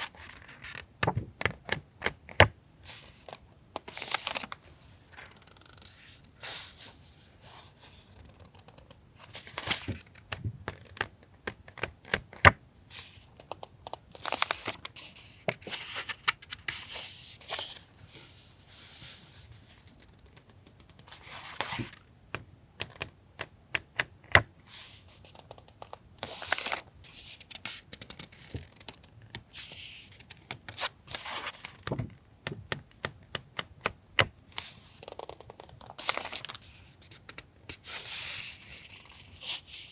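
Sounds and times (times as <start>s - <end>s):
paper and plastic rustling: 2.9s - 5.4s, 14.2s - 20.2s, 35.9s - 37.2s.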